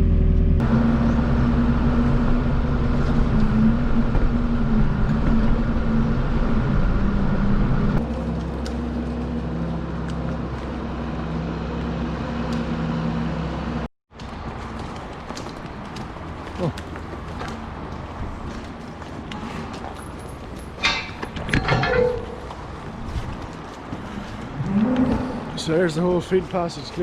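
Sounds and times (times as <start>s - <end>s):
farm machine engine running: 0.0s - 13.8s.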